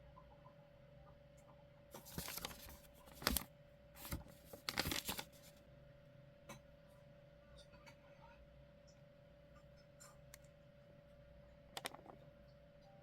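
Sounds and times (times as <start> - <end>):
packaging rustling and crinkling: 2.0 - 5.6.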